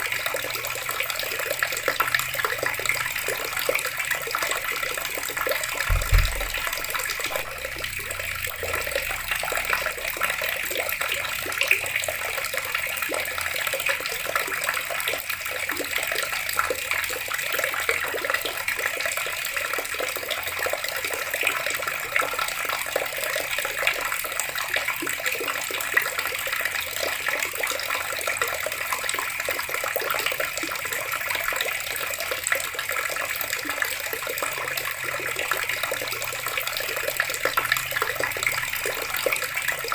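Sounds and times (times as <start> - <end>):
water running from a tap: 0.0 - 39.9
low thump: 5.8 - 8.8.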